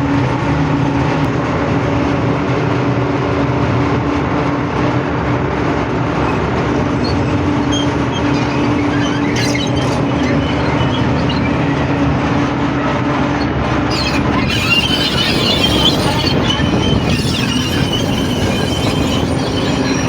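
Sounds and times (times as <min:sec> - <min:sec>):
diesel locomotive engine: 0:00.0 - 0:20.0
train cars rumbling on track: 0:00.0 - 0:20.0
wheels squealing on rails: 0:04.1 - 0:20.0.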